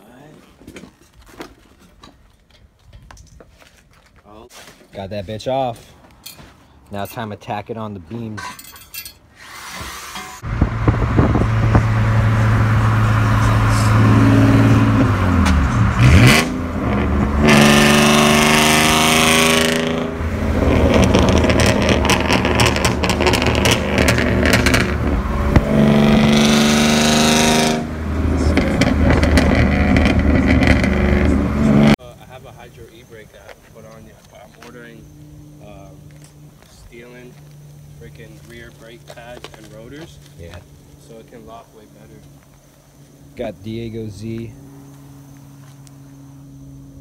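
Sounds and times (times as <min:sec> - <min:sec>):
car engine starting and revving: 0:10.4 - 0:32.0.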